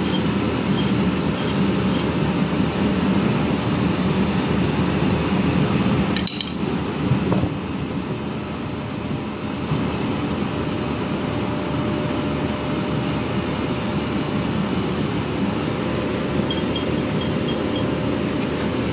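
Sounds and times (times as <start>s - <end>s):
loud rushing mechanical noise: 0.0s - 18.9s
sharp metallic clink: 16.5s - 17.9s.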